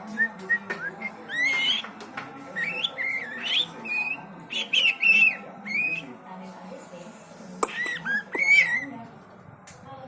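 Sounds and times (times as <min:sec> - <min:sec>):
bird singing whistled phrases: 0:00.2 - 0:01.9, 0:02.6 - 0:06.1, 0:07.7 - 0:08.9
sharp bird clicks: 0:00.5 - 0:01.9, 0:07.6 - 0:08.8.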